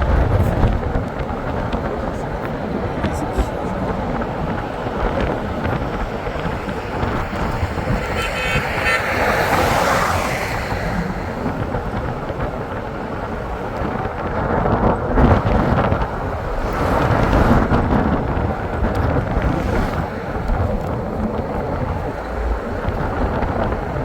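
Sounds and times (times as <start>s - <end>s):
road rumble: 0.0s - 24.0s
wind buffeting microphone: 0.0s - 24.0s
short horn toot: 7.6s - 11.5s.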